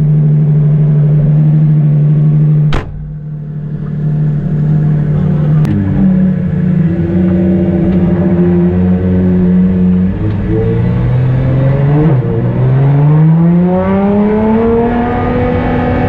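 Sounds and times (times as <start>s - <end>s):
sports car engine idling: 0.0s - 10.5s
sharp click: 2.7s - 3.2s.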